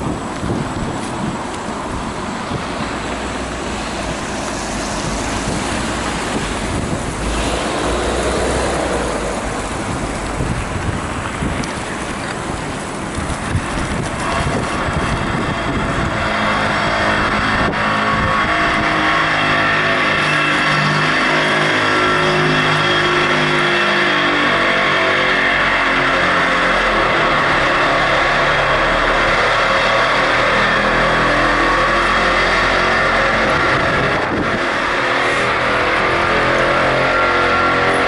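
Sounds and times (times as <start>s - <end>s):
road traffic noise: 0.0s - 38.0s
vehicle motor hum: 0.0s - 38.0s
wind rushing over microphone: 0.0s - 38.0s.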